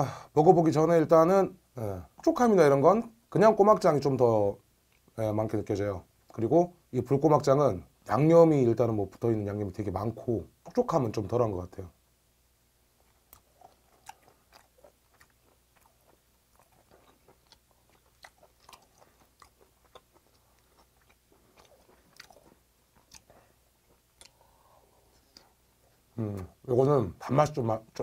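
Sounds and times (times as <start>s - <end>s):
faint wet chewing: 13.0s - 26.5s.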